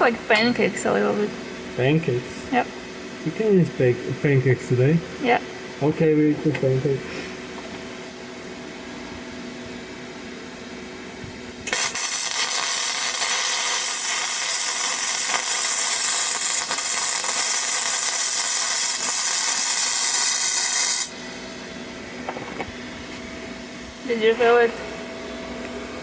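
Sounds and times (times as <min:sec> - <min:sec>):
welder cooling fan hum: 0:00.0 - 0:26.0
welding arc crackling and hissing: 0:11.6 - 0:21.2.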